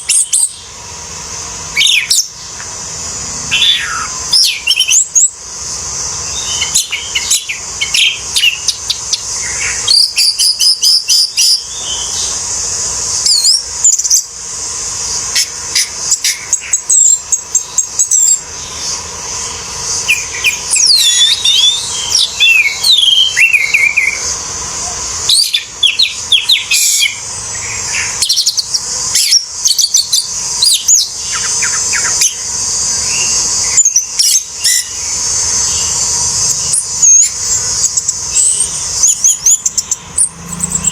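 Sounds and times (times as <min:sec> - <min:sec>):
steady high hiss: 0:00.0 - 0:40.9
thrush singing: 0:01.0 - 0:40.9.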